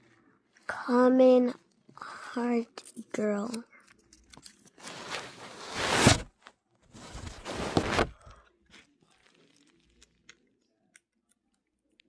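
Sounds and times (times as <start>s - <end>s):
plastic packaging crinkling: 7.0s - 10.4s.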